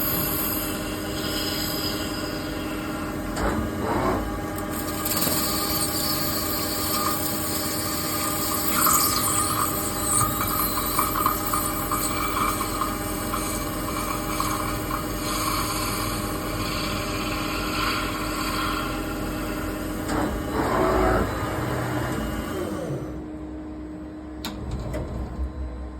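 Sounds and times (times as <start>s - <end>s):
lathe machine hum: 12.0s - 23.3s.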